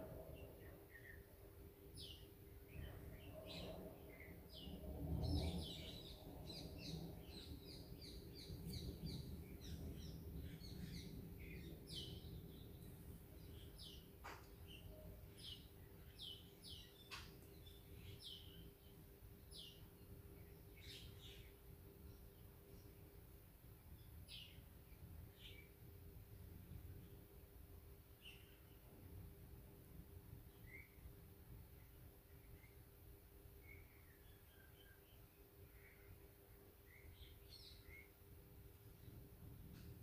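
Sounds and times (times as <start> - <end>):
faint steady hum: 0.0 - 40.0
faint bird chirps: 30.5 - 38.2.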